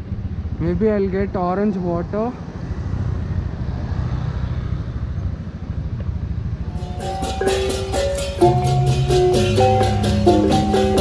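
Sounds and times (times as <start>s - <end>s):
wind: 0.0s - 11.0s
marimba background music: 6.7s - 11.0s.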